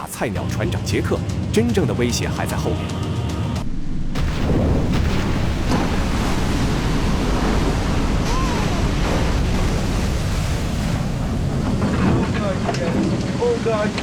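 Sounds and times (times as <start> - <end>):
breaking waves and spray: 4.2 - 14.0.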